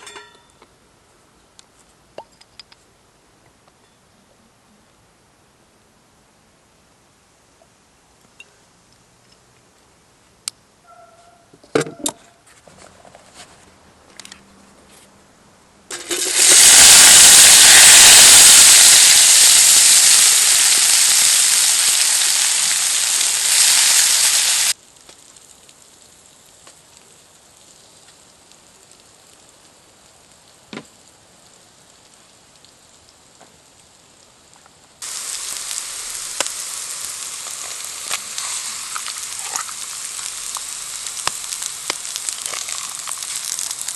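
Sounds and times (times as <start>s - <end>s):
food sizzling in a pan: 15.9s - 30.4s, 35.0s - 43.9s
small crackles: 15.9s - 43.9s.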